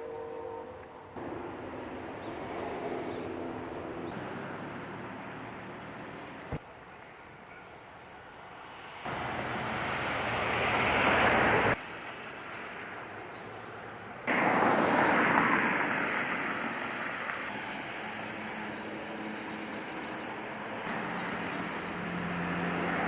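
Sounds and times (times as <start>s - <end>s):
tyres hissing on wet road: 9.0s - 23.0s.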